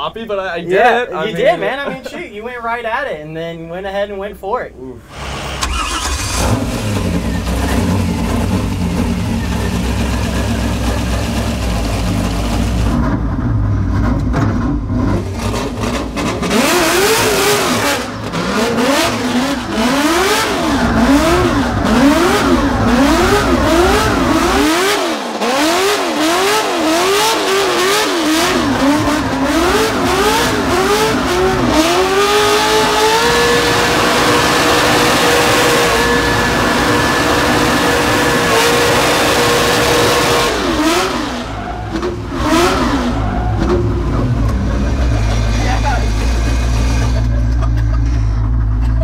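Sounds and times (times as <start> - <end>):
car engine revving: 5.1 - 49.0.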